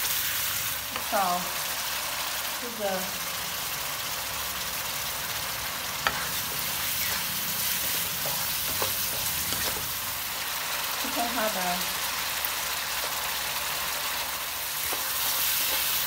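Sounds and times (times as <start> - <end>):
paste sizzling in a wok: 0.0 - 16.0
spatula knocking on pan: 7.7 - 9.9.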